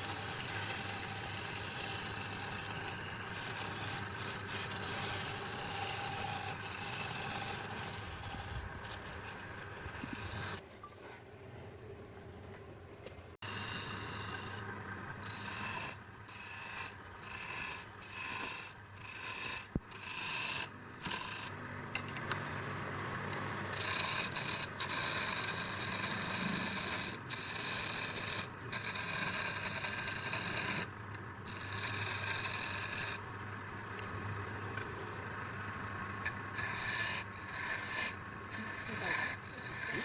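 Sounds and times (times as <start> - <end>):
tool scraping wood: 0.0 - 10.6, 13.4 - 22.4, 23.3 - 33.3, 36.2 - 40.0
steady high whine: 0.0 - 18.0.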